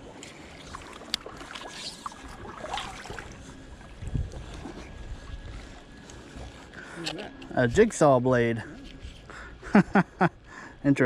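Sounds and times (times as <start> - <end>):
water movement: 0.0 - 7.8
wind on microphone: 2.3 - 6.6.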